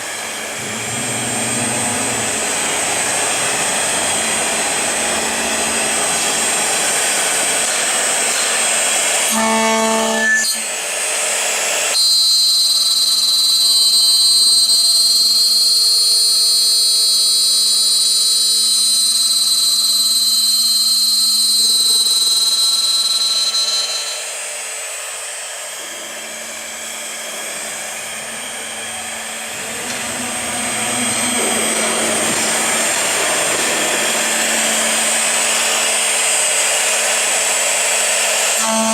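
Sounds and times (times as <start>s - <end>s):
milling machine spindle whine: 0.0s - 38.9s.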